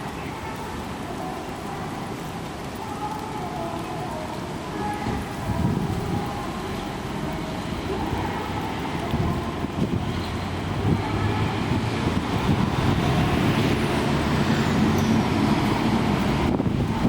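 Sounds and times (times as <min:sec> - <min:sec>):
city street traffic: 0:00.0 - 0:17.0
wind gusting across microphone: 0:03.7 - 0:17.0.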